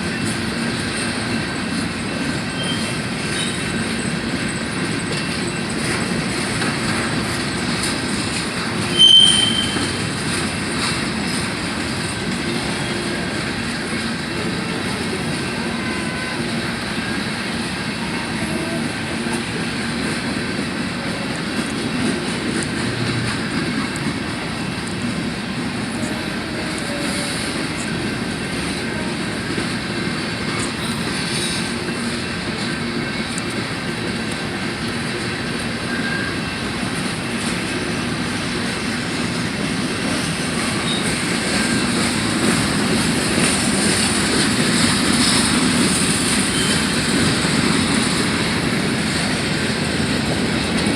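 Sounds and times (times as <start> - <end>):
train wheels rumbling on rails: 0.0 - 50.9.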